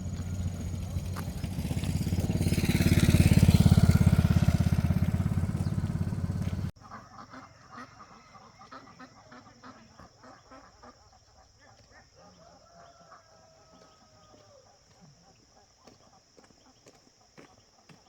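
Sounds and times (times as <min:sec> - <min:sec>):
faint chickens clucking: 0:05.3 - 0:18.0
rooster crowing: 0:12.4 - 0:14.6.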